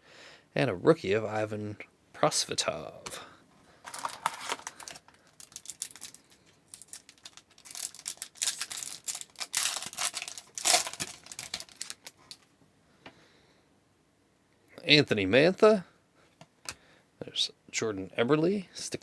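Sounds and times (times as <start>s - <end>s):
plastic wrapper tearing and crinkling: 3.9s - 12.4s.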